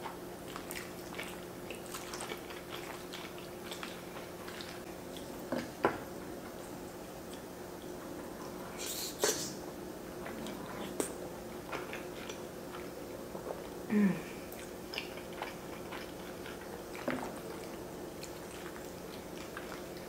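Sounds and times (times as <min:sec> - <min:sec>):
person humming mm: 0:13.9 - 0:14.4.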